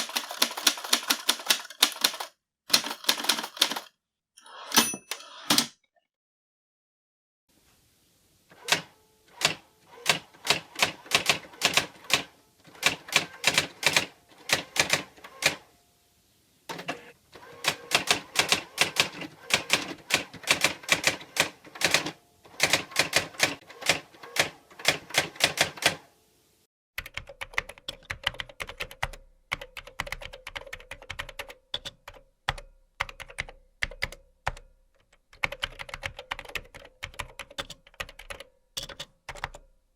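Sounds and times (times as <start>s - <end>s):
typewriter keys clacking: 0.0s - 3.9s, 9.4s - 15.6s, 17.7s - 26.0s.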